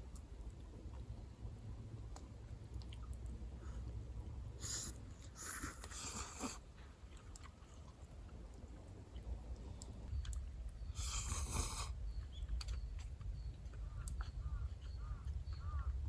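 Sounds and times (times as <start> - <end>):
person chewing noodles: 4.6 - 15.9.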